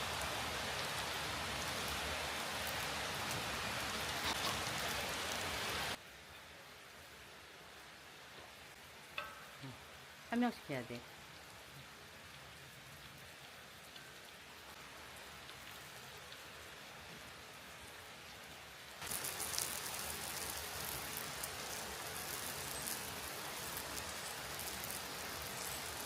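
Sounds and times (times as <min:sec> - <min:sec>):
food sizzling: 0:00.0 - 0:06.0, 0:19.0 - 0:26.0.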